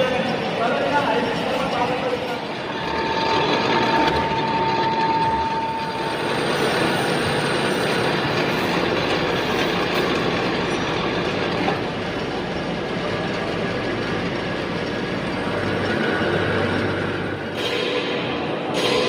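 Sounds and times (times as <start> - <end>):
metal lathe cutting metal: 0.0 - 19.0
high steady tone: 1.4 - 8.4.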